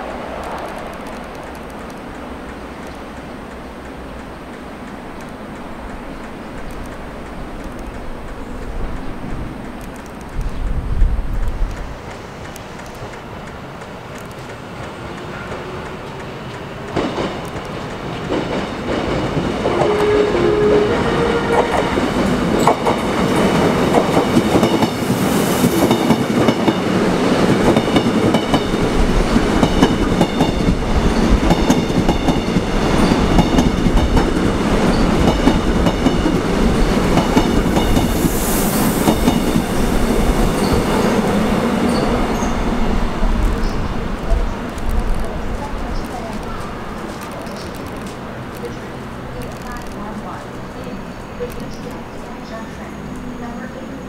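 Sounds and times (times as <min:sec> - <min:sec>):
electric train rumbling past: 0:00.0 - 0:54.0
high squeal of train wheels: 0:19.7 - 0:23.0, 0:34.8 - 0:43.0, 0:43.6 - 0:43.9.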